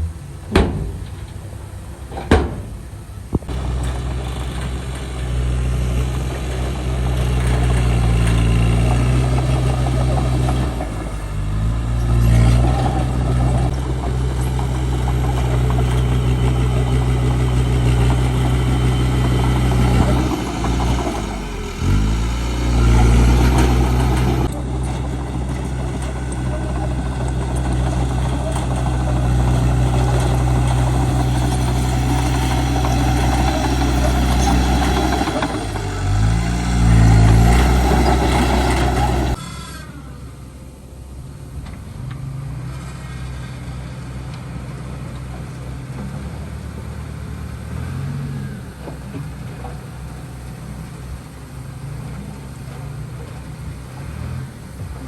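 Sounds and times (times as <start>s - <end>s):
heavy diesel engine running: 0.0s - 55.0s
sharp knocks: 0.5s - 1.4s, 2.1s - 3.5s.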